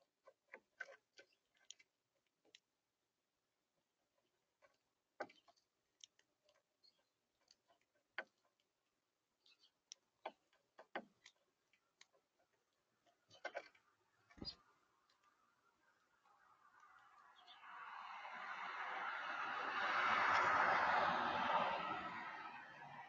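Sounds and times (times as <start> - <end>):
birds pecking at feeder: 0.0 - 17.6.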